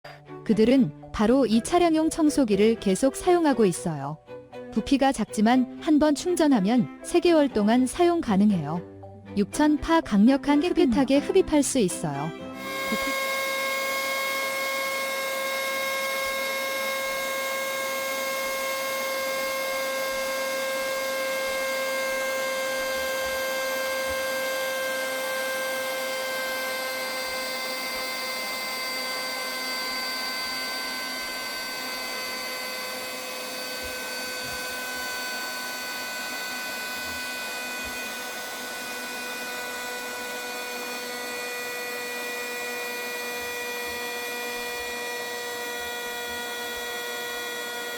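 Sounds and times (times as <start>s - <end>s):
handheld vacuum cleaner running: 11.1s - 47.9s.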